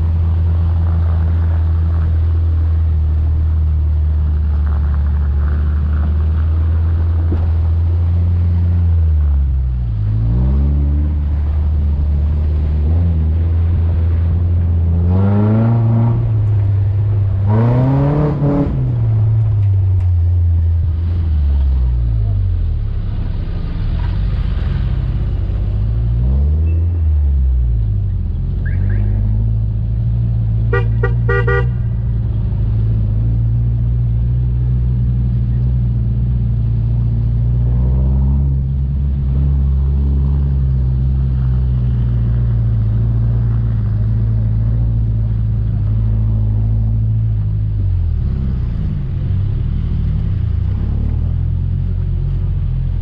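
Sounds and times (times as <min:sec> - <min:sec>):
short horn toots: 0:30.7 - 0:31.9.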